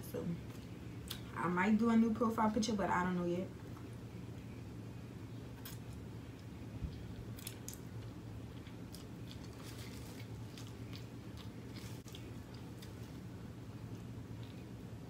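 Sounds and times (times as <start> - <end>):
steady low hum: 0.0 - 15.0
person chewing noodles: 5.6 - 15.0.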